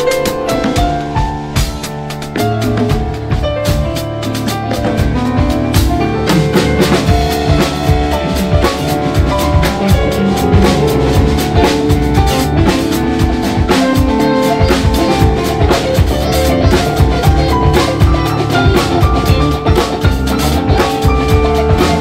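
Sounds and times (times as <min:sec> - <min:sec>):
drum kit hits: 0:00.0 - 0:22.0
live band playing: 0:00.0 - 0:22.0.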